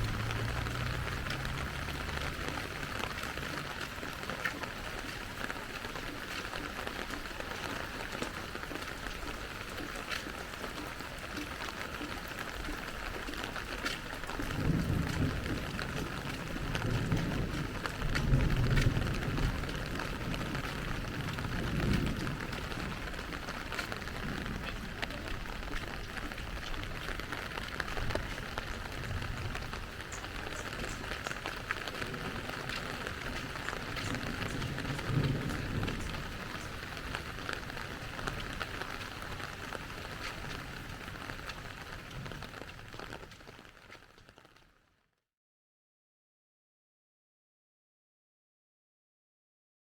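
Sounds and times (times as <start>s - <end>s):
low rumbles: 0.0s - 4.0s
steady rain falling: 0.0s - 45.1s.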